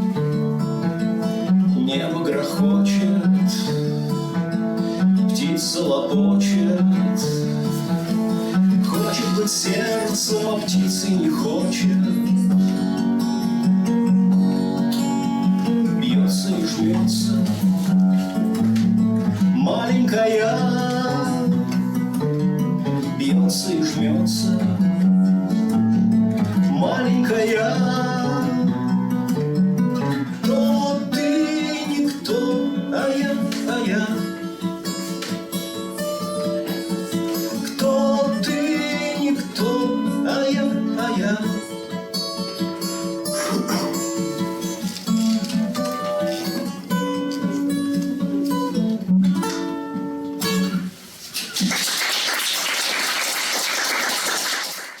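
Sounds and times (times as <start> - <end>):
acoustic guitar playing: 0.0 - 51.7
man singing: 1.5 - 4.4, 5.0 - 13.0, 15.6 - 18.0, 19.2 - 25.2, 26.4 - 29.4, 30.0 - 35.0, 36.7 - 45.6
audience applause: 51.6 - 55.0.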